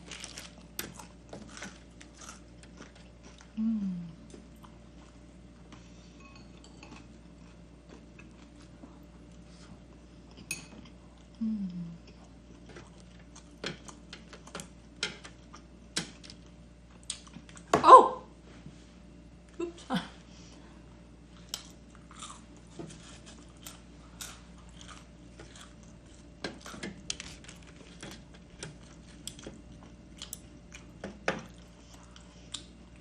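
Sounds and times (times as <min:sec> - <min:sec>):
faint chewing: 0:00.0 - 0:06.0, 0:06.6 - 0:17.7, 0:21.3 - 0:33.0
utensils clinking on a plate: 0:06.2 - 0:07.1, 0:10.4 - 0:10.9.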